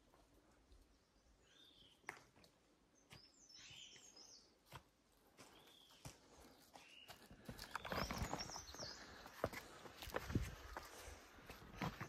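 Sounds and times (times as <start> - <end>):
faint bird chirping: 0.5 - 2.2, 2.8 - 4.7, 5.4 - 9.9.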